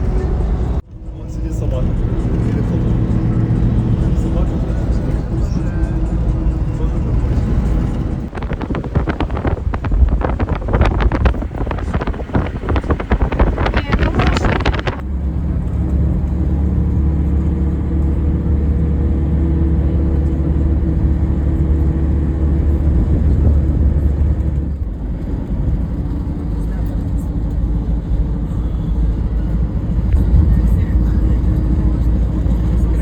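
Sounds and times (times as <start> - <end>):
vehicle engine droning: 0.0 - 33.0
wind buffeting microphone: 1.9 - 15.1, 27.3 - 33.0.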